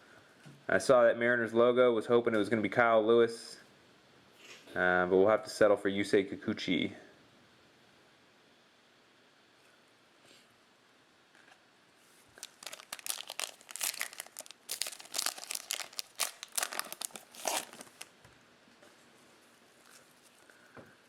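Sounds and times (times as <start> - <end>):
foil wrapper tearing and crinkling: 12.4 - 18.1.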